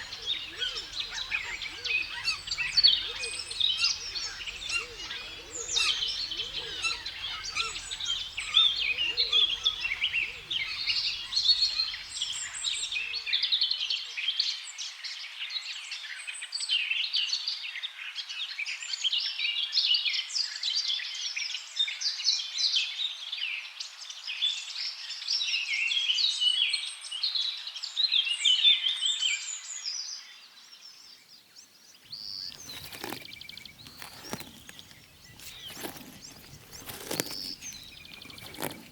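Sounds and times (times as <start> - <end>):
small birds chirping and trilling: 0.0 - 13.6, 31.7 - 38.9.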